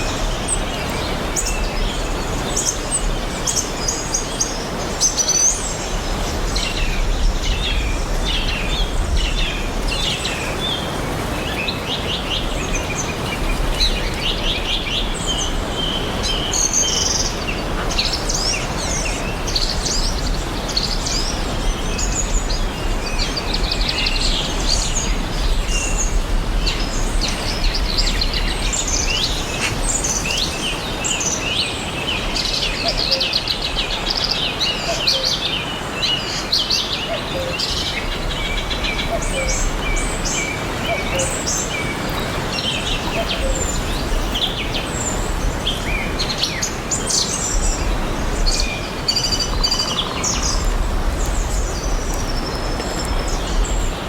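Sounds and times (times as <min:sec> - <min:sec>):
small birds chirping and trilling: 0:00.0 - 0:54.0.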